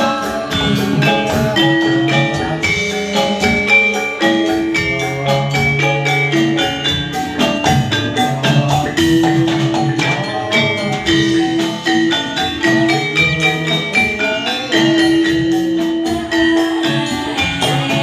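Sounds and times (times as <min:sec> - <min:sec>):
metallophones ringing: 0:00.0 - 0:18.0.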